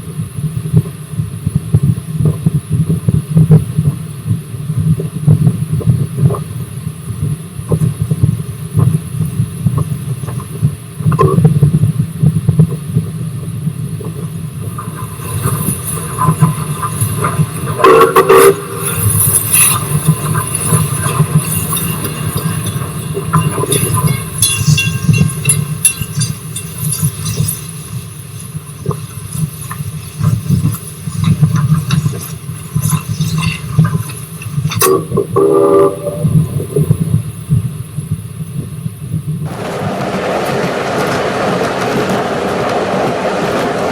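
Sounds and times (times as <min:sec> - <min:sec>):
wheels clattering on rails: 0:14.8 - 0:35.4
locomotive low rumble: 0:39.5 - 0:43.9.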